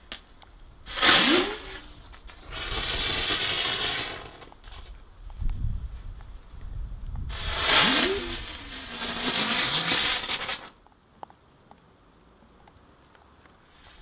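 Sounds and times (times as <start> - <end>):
firework hissing: 0.8 - 4.9, 7.3 - 10.8, 13.7 - 14.0.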